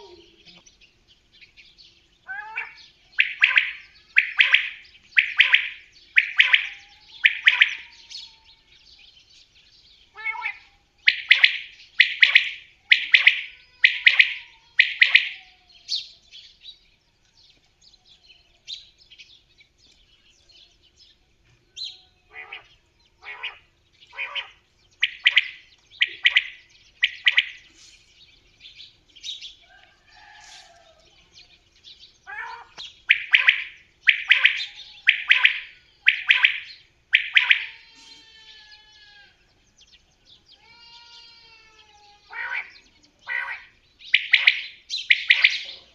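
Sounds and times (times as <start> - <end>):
fainter bird calls: 2.2 - 9.0, 10.0 - 16.5, 20.4 - 31.6, 32.2 - 39.6, 40.4 - 45.9
bird calling sharp notes: 2.3 - 8.3, 10.1 - 16.1, 22.3 - 27.8, 32.2 - 37.9, 42.3 - 45.9.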